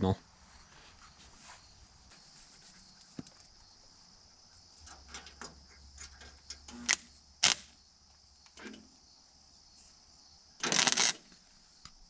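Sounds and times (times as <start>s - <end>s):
welding crackle: 6.7s - 7.8s, 10.6s - 11.3s.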